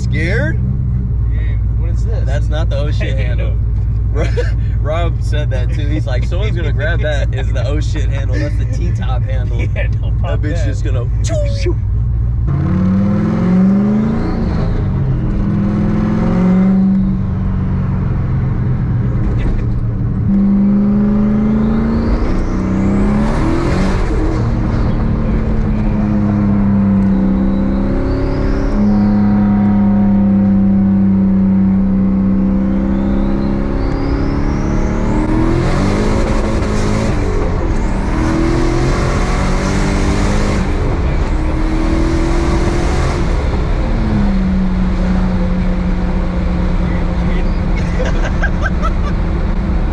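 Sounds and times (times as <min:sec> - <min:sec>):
car engine accelerating: 0:00.0 - 0:49.9.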